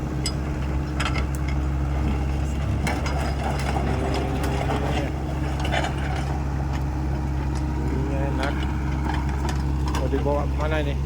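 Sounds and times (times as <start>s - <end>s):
excavator diesel engine running: 0.0s - 11.0s
clicks and clanks of moving parts: 8.4s - 10.7s.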